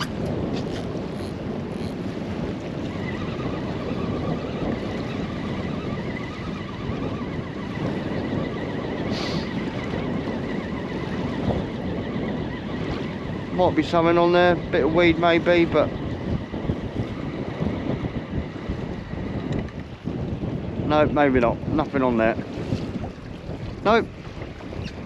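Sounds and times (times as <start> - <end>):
water lapping against boat: 0.0 - 8.1, 18.5 - 25.0
fishing reel whirring: 0.0 - 8.8
wind buffeting microphone: 0.0 - 25.0.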